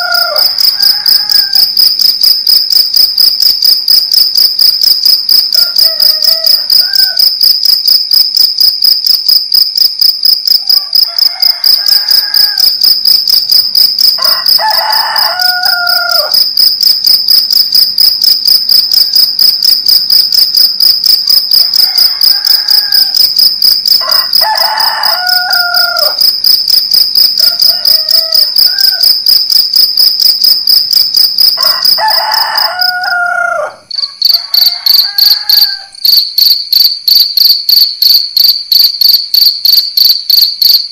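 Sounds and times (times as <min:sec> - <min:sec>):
roosters crowing: 0:00.0 - 0:02.2, 0:05.6 - 0:07.4, 0:10.6 - 0:12.9, 0:14.0 - 0:16.5, 0:21.6 - 0:26.5, 0:27.2 - 0:29.4, 0:31.5 - 0:36.1
crickets chirping: 0:00.0 - 0:40.9.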